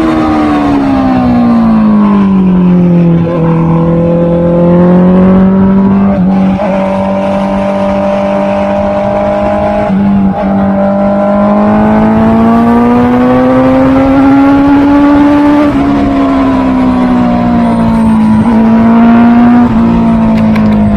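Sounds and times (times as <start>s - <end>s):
motorcycle engine accelerating: 0.0s - 20.9s.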